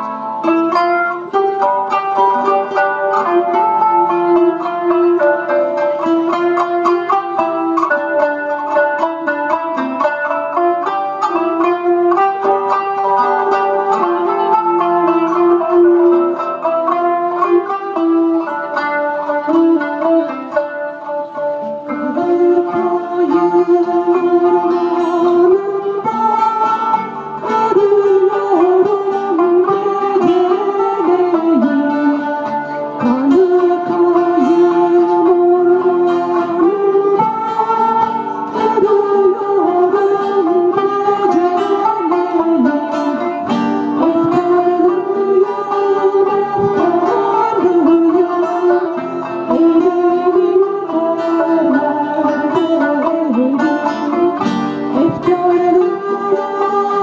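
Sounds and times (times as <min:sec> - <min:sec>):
plucked string instruments: 0:00.0 - 0:57.0
wavering melody voice: 0:12.4 - 0:43.4.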